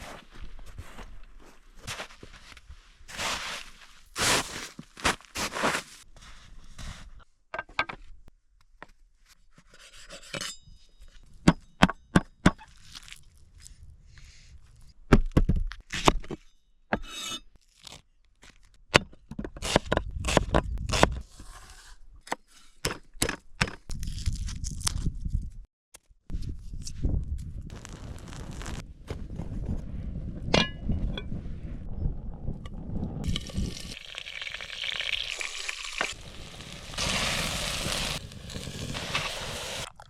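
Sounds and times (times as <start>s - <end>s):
scraping and crunching: 0.0s - 6.1s, 33.2s - 40.0s.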